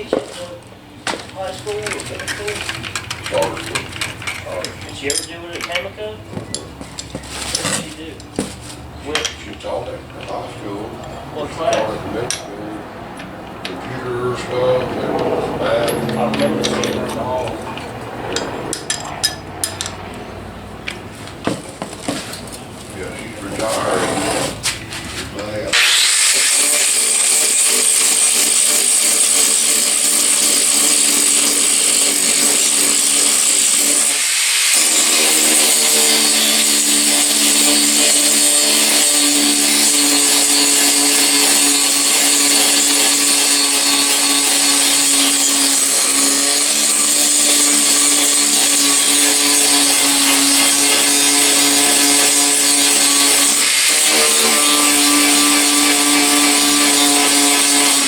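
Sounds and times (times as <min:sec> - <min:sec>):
power tool on sheet metal: 0:01.1 - 0:05.3, 0:13.7 - 0:20.2, 0:23.2 - 0:24.8, 0:25.5 - 0:58.0.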